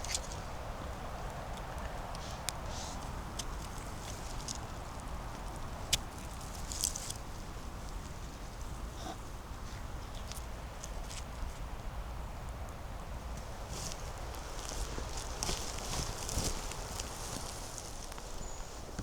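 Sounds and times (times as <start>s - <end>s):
twigs snapping: 0.0s - 0.9s, 3.3s - 7.3s, 13.4s - 19.0s
leaves rustling: 0.0s - 8.9s, 13.2s - 19.0s
footsteps on forest floor: 13.4s - 19.0s.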